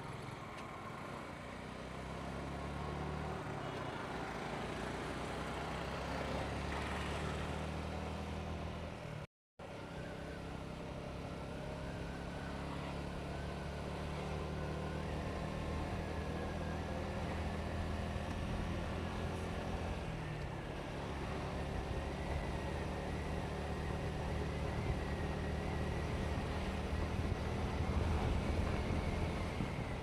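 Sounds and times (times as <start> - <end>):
road and wind noise: 0.0 - 30.0.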